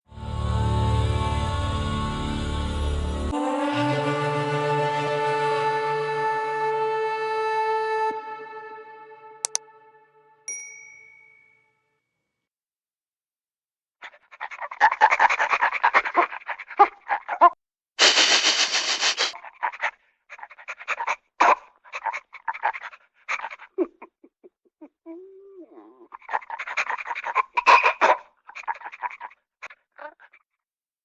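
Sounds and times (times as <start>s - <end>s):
dog panting: 14.0s - 17.4s, 18.0s - 21.2s, 21.8s - 23.8s, 26.3s - 27.5s.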